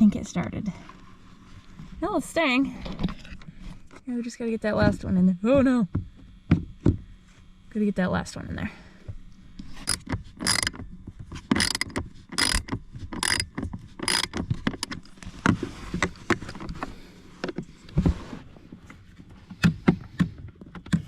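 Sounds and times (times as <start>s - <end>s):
ratchet wrench clicking: 9.8s - 10.8s, 11.5s - 15.0s.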